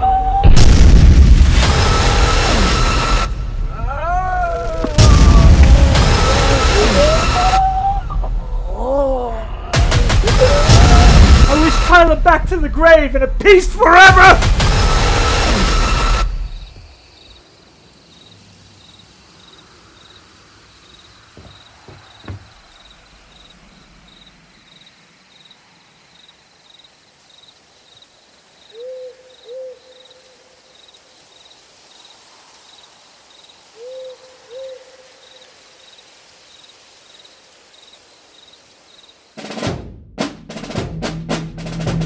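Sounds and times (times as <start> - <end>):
owl hooting: 6.2 - 8.8, 28.7 - 30.4, 33.7 - 35.4
crickets chirping: 14.7 - 39.4.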